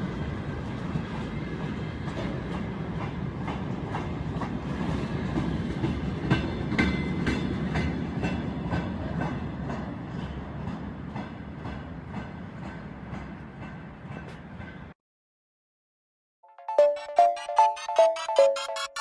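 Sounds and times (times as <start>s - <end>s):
low train rumble: 0.0s - 15.0s
train wheels clacking over rail joints: 0.6s - 14.9s.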